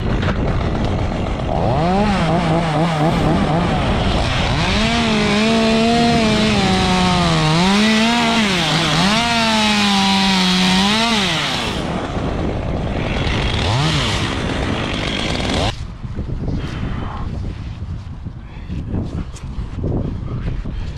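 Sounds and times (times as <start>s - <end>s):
chainsaw cutting: 0.0s - 15.8s.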